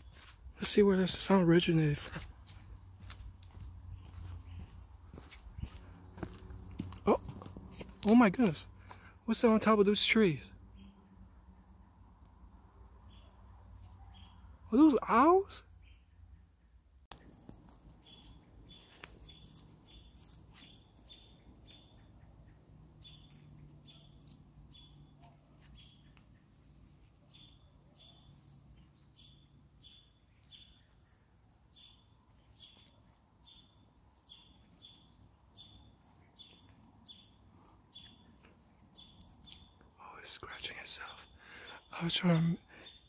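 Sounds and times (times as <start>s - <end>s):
faint bird chirps: 10.5s - 43.0s.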